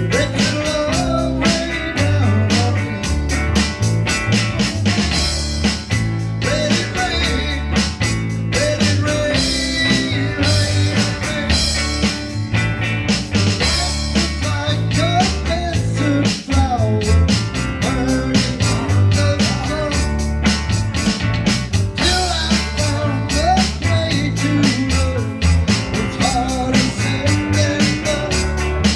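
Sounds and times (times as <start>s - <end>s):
rock band playing: 0.0s - 28.9s.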